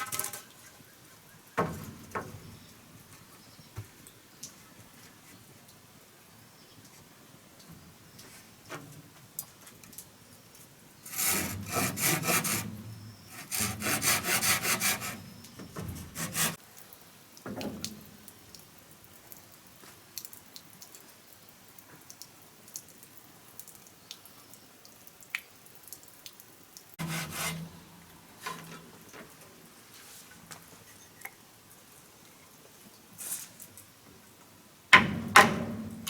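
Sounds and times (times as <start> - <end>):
hand saw rasping through wood: 11.1 - 15.3, 16.0 - 16.6, 27.0 - 27.7.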